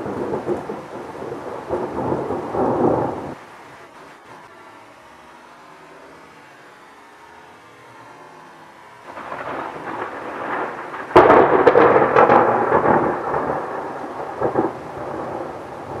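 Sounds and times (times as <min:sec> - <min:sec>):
thunder crack and rumble: 0:00.0 - 0:03.4, 0:09.1 - 0:16.0
rain: 0:00.0 - 0:16.0.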